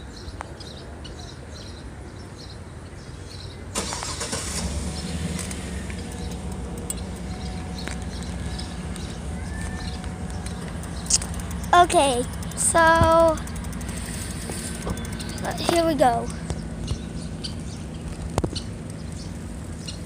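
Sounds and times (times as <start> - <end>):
vehicle engine starting and running: 3.7 - 20.0
low background rumble: 4.2 - 20.0
high chirps: 6.0 - 20.0.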